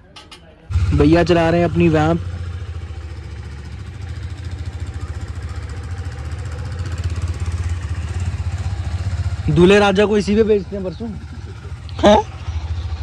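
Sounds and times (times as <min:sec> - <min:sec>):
motorcycle engine at low revs: 0:00.7 - 0:13.0.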